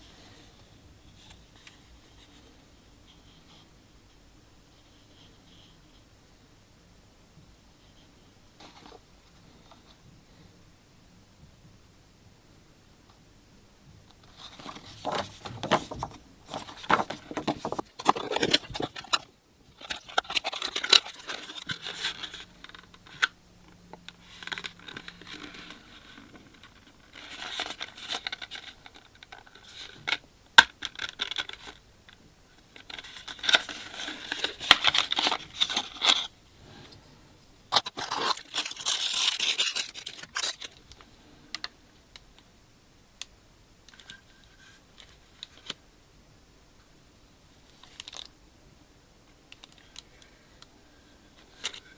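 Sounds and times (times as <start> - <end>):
wrapping tearing and crinkling: 14.4 - 19.2, 19.8 - 23.3, 32.8 - 36.3, 37.7 - 40.8.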